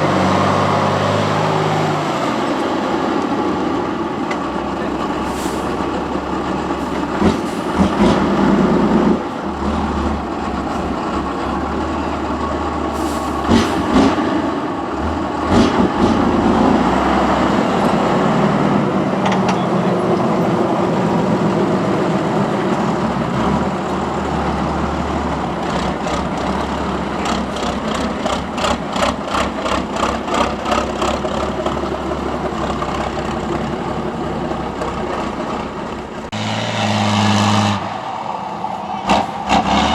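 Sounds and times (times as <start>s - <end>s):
truck engine running under load: 0.0s - 39.9s
sharp knocks and clanks: 19.2s - 19.7s.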